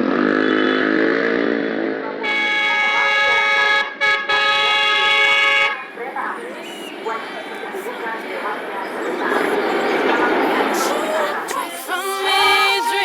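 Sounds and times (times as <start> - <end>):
engine: 0.0 - 2.3
train multi-tone air horn: 2.2 - 5.9.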